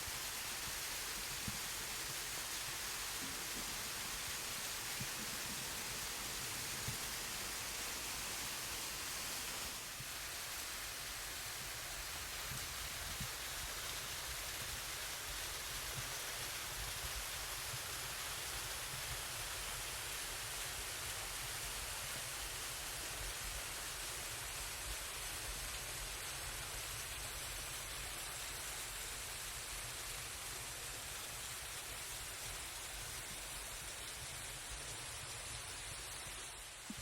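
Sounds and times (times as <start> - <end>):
waterfall splashing into pool: 0.0 - 28.3.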